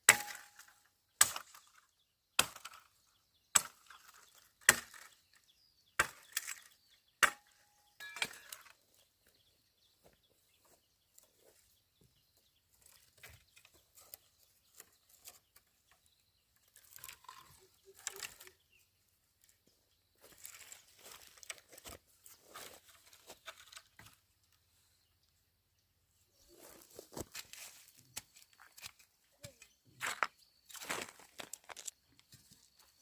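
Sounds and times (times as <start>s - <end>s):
blade chopping into wood: 0.1s - 1.8s, 7.2s - 8.7s.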